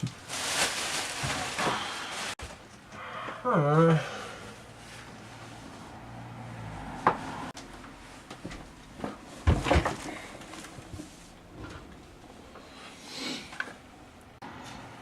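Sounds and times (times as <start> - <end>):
objects knocking and clattering: 8.4 - 11.0.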